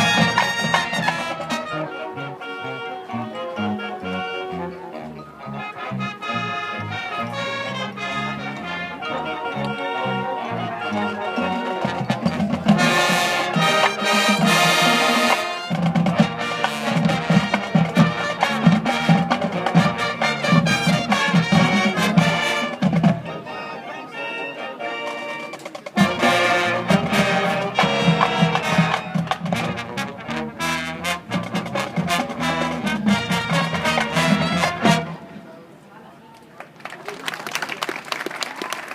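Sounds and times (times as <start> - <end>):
low brass bass line: 0.0 - 23.4, 26.0 - 35.4
marching band playing: 0.0 - 35.6.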